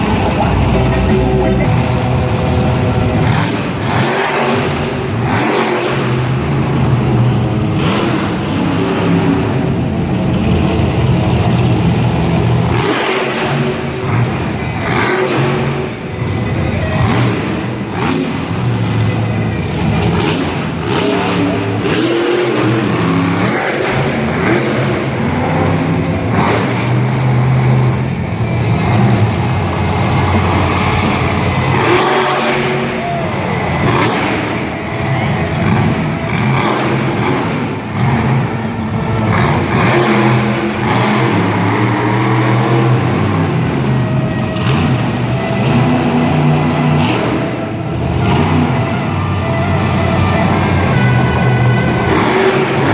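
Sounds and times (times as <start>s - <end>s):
monster truck engine revving: 0.0s - 52.9s.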